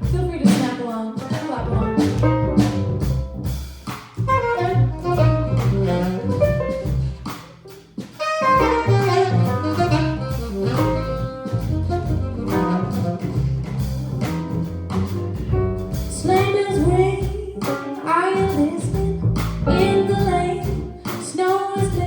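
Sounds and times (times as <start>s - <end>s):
bass: 0.0s - 22.0s
drums: 0.0s - 22.0s
piano: 0.0s - 22.0s
trumpet melody: 4.2s - 7.0s, 8.2s - 13.6s
alto saxophone melody: 4.2s - 7.2s, 8.2s - 13.9s.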